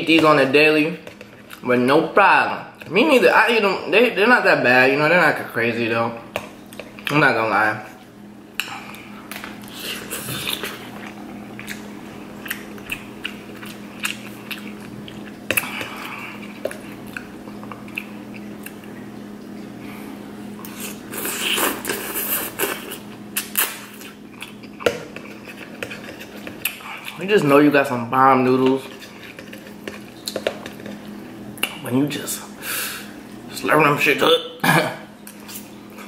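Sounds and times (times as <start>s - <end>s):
chewing noodles: 8.8s - 19.5s, 20.6s - 27.3s, 28.8s - 31.8s.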